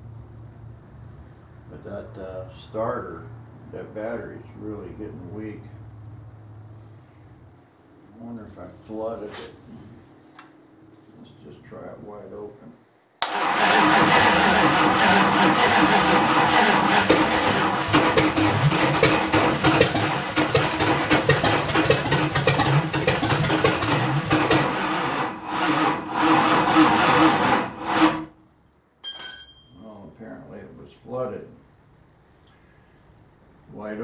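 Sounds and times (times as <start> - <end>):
engine cranking on starter: 13.2 - 28.3.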